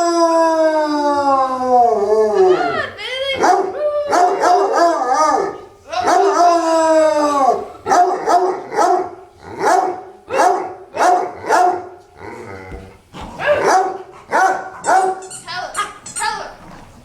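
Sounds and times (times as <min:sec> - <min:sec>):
dog howling: 0:00.0 - 0:10.5
dogs barking and yelping: 0:02.0 - 0:06.8, 0:07.4 - 0:16.2.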